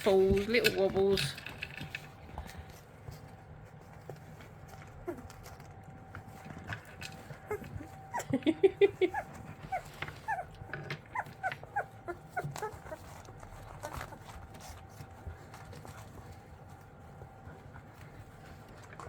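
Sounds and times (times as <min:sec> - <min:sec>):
puppies squeaking and whimpering: 0:07.2 - 0:14.7.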